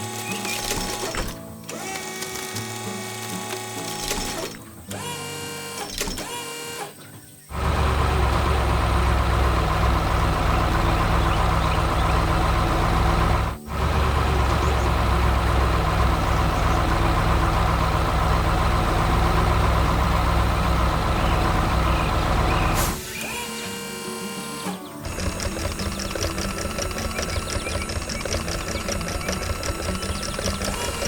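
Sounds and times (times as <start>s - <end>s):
excavator diesel engine running: 0.0s - 6.9s, 7.5s - 31.0s.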